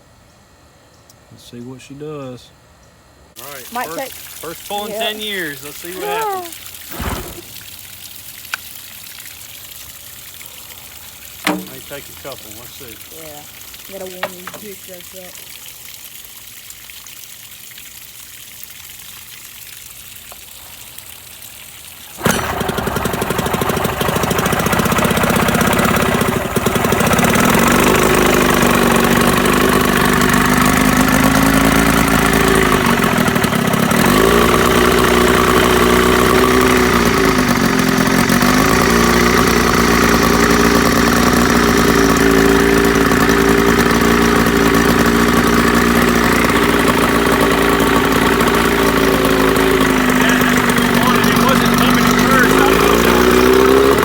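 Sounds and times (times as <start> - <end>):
outboard motor running: 3.3 - 8.8, 10.0 - 15.6, 22.2 - 54.0.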